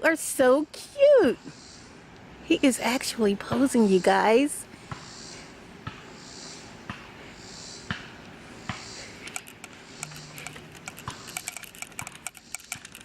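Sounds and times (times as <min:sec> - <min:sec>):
soft breaths: 0:04.7 - 0:10.7
small clicks and taps: 0:09.2 - 0:13.0.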